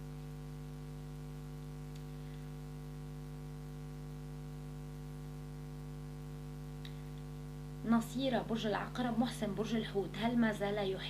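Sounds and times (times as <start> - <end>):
electrical hum: 0.0 - 11.0
faint click: 1.9 - 2.1.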